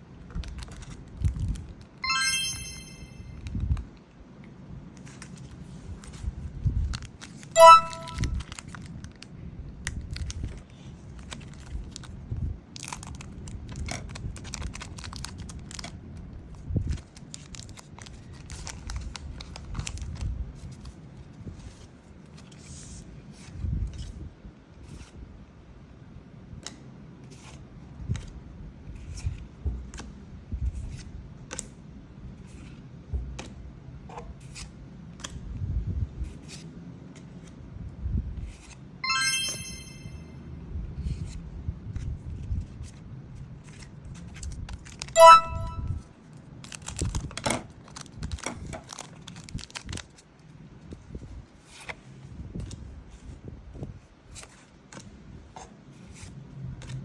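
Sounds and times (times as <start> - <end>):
brief high-pitched tone: 2.0 - 3.4, 7.6 - 8.4, 39.0 - 40.2, 45.2 - 46.0
loud short tone: 7.6 - 8.4, 45.2 - 46.0.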